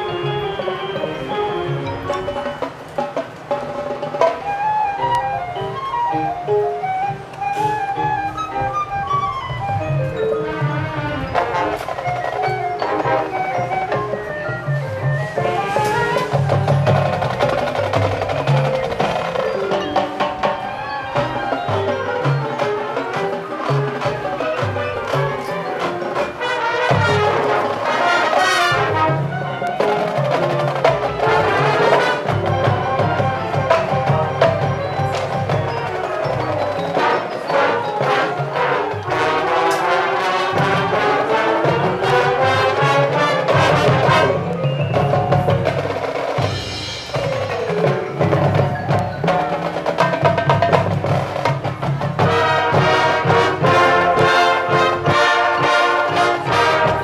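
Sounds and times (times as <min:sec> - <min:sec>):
drums: 0:00.0 - 0:57.0
mallet instruments: 0:00.0 - 0:57.0
marching band playing: 0:00.0 - 0:57.0.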